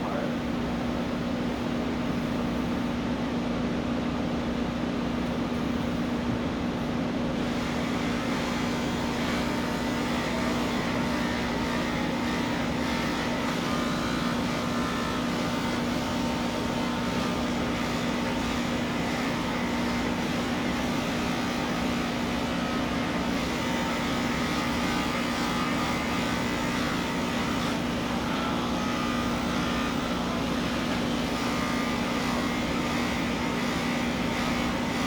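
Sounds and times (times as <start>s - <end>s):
electric clippers humming: 7.4s - 35.0s.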